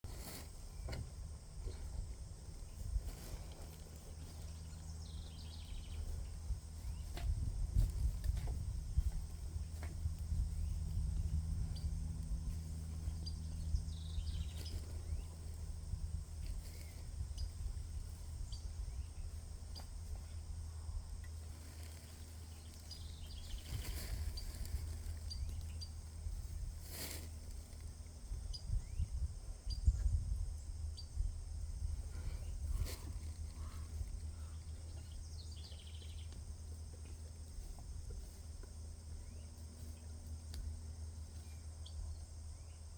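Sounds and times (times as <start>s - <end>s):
deep rumble: 0.1s - 39.5s
bird chirps: 13.0s - 15.4s, 34.4s - 36.4s.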